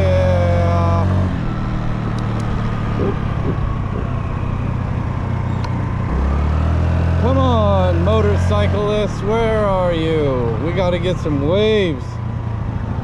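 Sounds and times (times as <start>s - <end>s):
small engine humming: 0.0s - 6.9s
road and wind noise: 0.0s - 13.0s.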